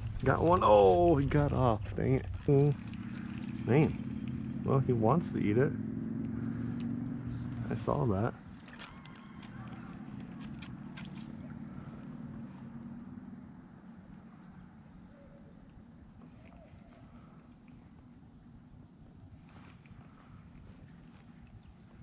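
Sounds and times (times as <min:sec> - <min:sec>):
low rumble: 0:00.0 - 0:08.5
crickets trilling: 0:00.0 - 0:22.0.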